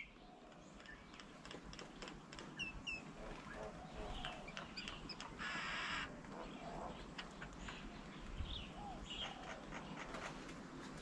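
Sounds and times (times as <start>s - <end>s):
birds chirping: 0.0s - 11.0s
harsh rasping bird call: 5.3s - 7.0s.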